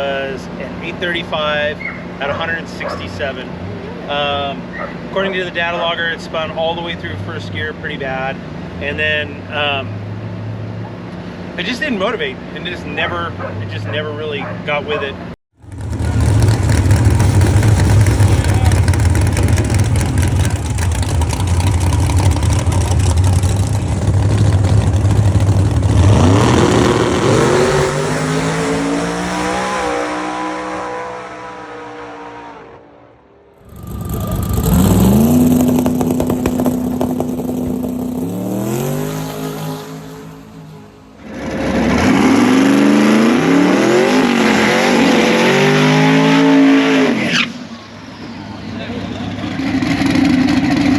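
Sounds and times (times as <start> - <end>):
drag car engine at full power: 15.6 - 50.9.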